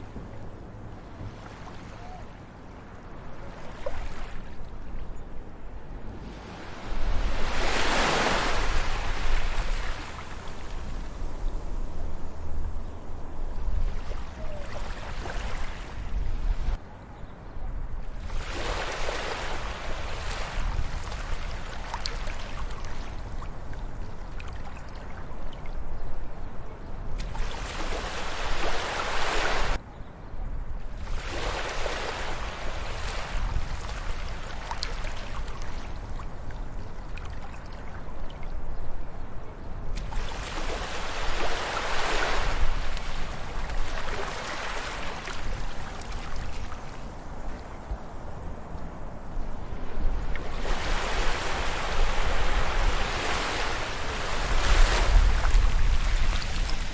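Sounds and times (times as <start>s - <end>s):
ocean waves breaking on beach: 5.9s - 12.6s, 13.7s - 16.8s, 18.2s - 25.2s, 27.2s - 29.8s, 31.0s - 36.4s, 39.9s - 56.9s.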